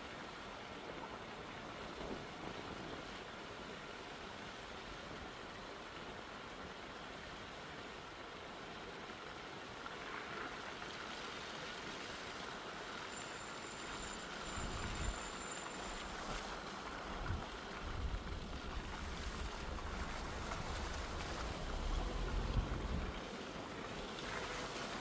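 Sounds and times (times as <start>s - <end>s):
wind rushing outdoors: 14.4s - 25.0s
wind buffeting microphone: 17.2s - 23.2s.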